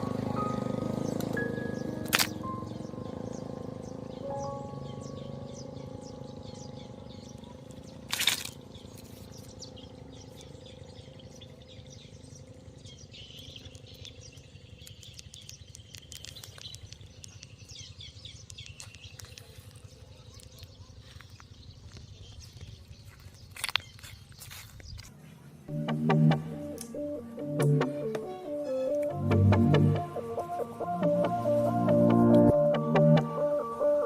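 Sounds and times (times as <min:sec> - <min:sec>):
faint birds chirping: 0:00.0 - 0:34.0
small clicks: 0:02.0 - 0:02.4, 0:07.7 - 0:09.2, 0:13.3 - 0:19.8
steady low hum: 0:25.3 - 0:34.0.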